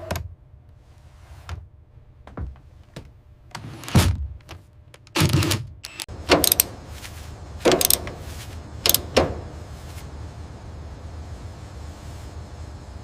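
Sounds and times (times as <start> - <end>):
low steady hum: 0.0 - 13.0
mechanical clunks and swishes: 3.5 - 6.8, 7.6 - 9.6.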